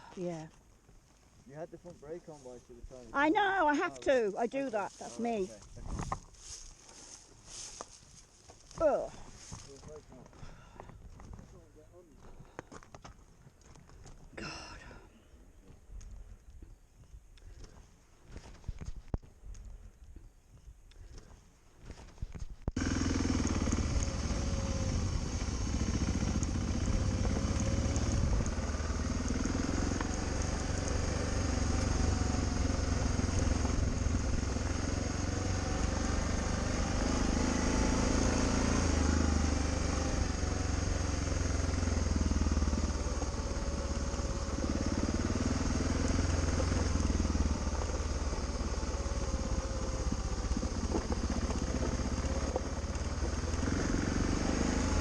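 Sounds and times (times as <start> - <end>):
motorcycle engine running: 1.6 - 12.6, 22.7 - 55.0
wind noise on microphone: 5.8 - 6.3.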